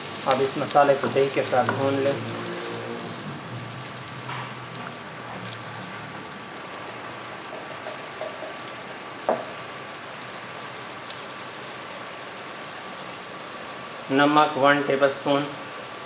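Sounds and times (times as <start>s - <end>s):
masala frying sizzle: 0.0s - 16.0s
spoon knocking pot: 7.5s - 8.6s
light clink: 10.8s - 11.7s.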